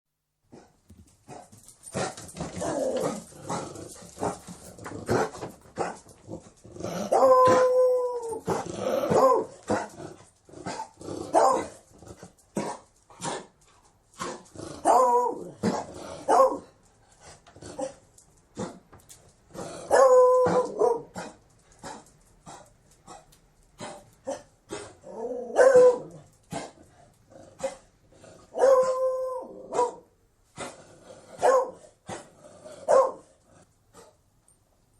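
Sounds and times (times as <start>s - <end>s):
dog baying and barking: 6.9s - 10.0s, 10.6s - 11.8s, 14.2s - 16.7s, 19.9s - 23.2s, 23.8s - 26.8s, 28.5s - 30.1s, 31.4s - 32.3s, 32.9s - 33.3s.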